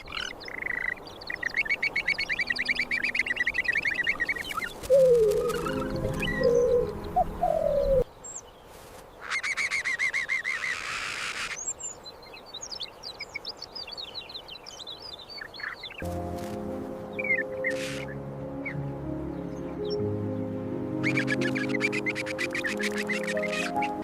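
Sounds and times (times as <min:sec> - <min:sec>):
birds chirping: 0:00.0 - 0:24.0
music: 0:04.9 - 0:08.0, 0:16.0 - 0:24.0.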